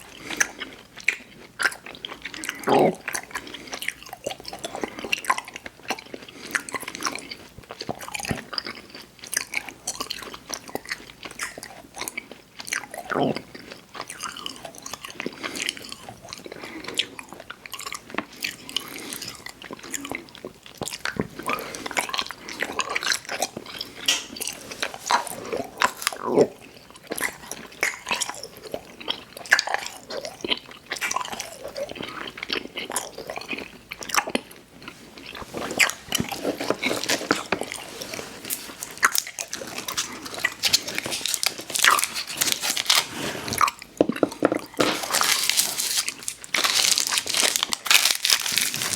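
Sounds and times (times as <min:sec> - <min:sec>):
wet sticky chewing: 0:00.0 - 0:48.9.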